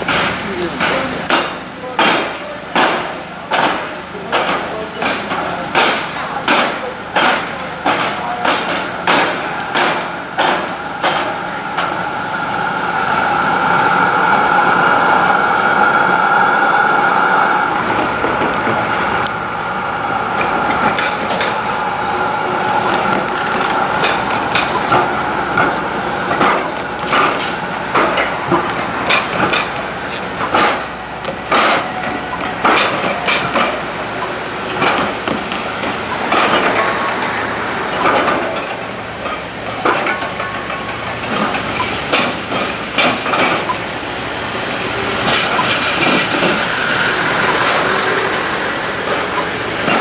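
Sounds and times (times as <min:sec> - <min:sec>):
wheels clacking over rail joints: 0:00.0 - 0:50.0
steady whine: 0:07.5 - 0:50.0.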